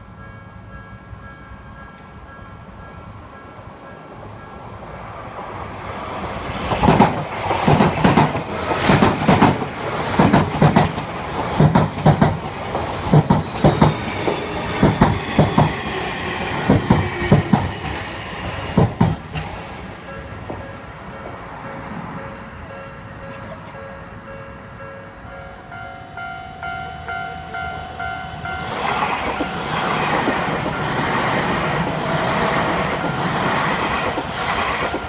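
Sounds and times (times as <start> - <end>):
train wheels clattering over rail joints: 6.6 - 22.2, 28.6 - 35.0.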